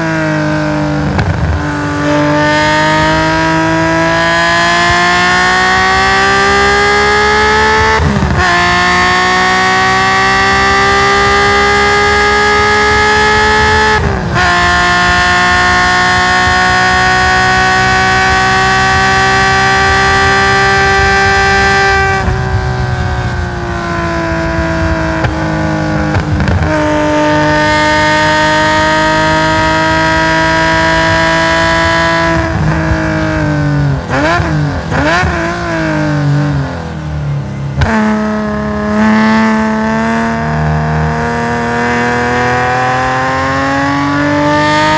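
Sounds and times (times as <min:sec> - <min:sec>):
race car engine at full throttle: 0:00.0 - 0:44.9
sharp cracks of gear changes: 0:24.6 - 0:28.6.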